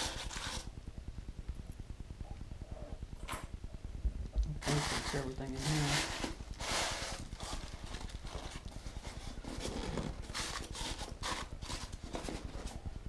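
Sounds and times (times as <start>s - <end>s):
packaging rustling: 4.6s - 12.8s.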